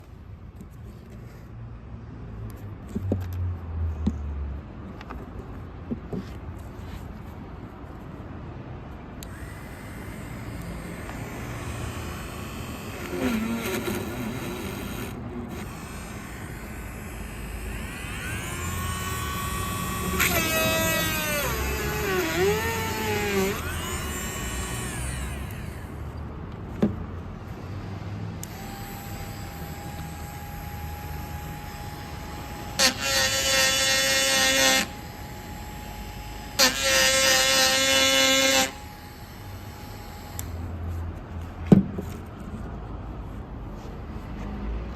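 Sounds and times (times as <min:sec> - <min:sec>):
small electric motor whining: 0:09.2 - 0:26.2, 0:28.4 - 0:40.7.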